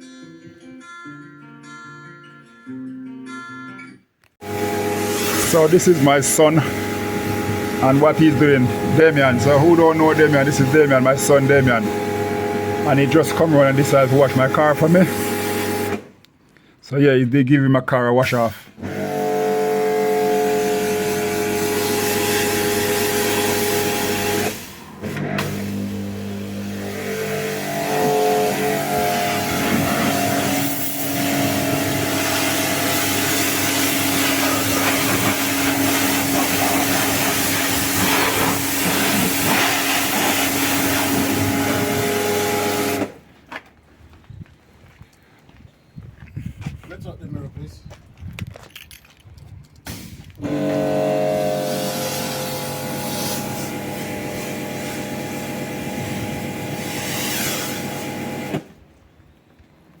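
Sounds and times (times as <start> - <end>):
pressure washer motor hum: 4.4 - 16.1, 18.8 - 43.3, 49.9 - 58.8
water jet hissing: 4.4 - 16.1, 19.0 - 43.2, 51.3 - 58.6.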